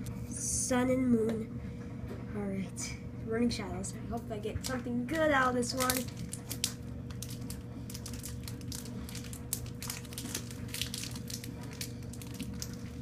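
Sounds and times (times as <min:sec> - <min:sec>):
low room hum: 0:00.0 - 0:13.0
foil wrapper crinkling and tearing: 0:04.6 - 0:13.0.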